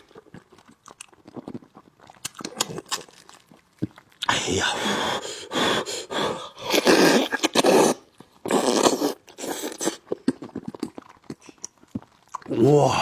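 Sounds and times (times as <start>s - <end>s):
chewing and lip-smacking: 0.0s - 4.3s, 6.7s - 12.6s
wet slurping and sucking: 4.2s - 12.6s.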